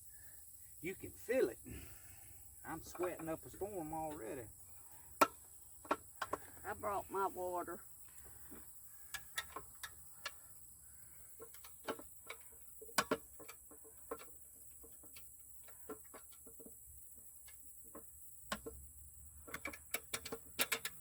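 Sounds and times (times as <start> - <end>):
hand tools clicking and tapping: 2.7 - 3.4, 5.1 - 6.8, 8.1 - 10.4, 11.3 - 21.0.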